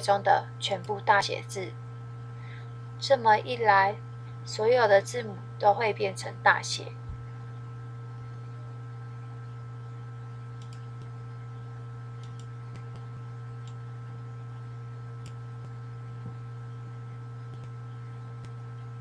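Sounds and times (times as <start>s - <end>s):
low electrical hum: 0.0s - 19.0s
computer mouse clicks: 10.6s - 11.1s, 12.2s - 13.8s, 17.5s - 17.8s.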